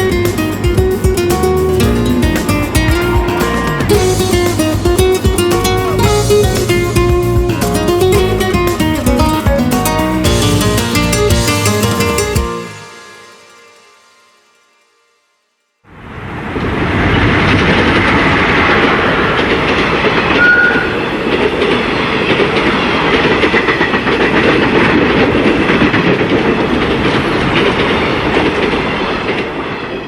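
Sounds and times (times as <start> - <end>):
train wheels clattering: 19.4 - 30.0
short high tone: 20.4 - 21.1.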